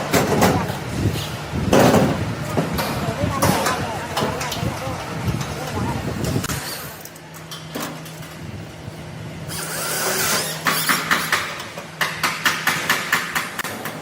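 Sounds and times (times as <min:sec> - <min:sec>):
steady low hum: 0:00.0 - 0:10.4
rapid hammer blows: 0:09.5 - 0:14.0.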